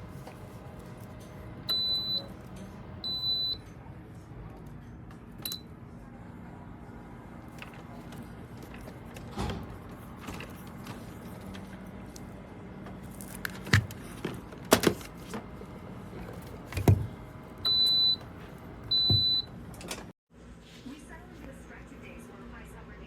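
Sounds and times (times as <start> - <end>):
handling knocks and clicks: 16.2 - 17.2.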